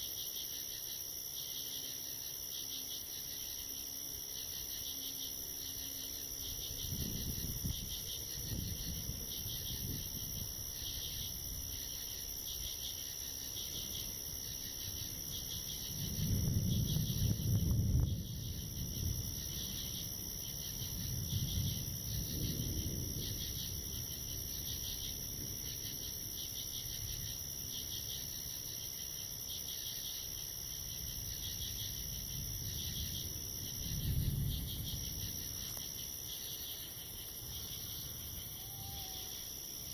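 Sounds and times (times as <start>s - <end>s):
night insects chirping: 0.0s - 39.9s
distant thunder rumbling: 6.4s - 12.3s, 13.1s - 27.3s, 30.8s - 39.2s.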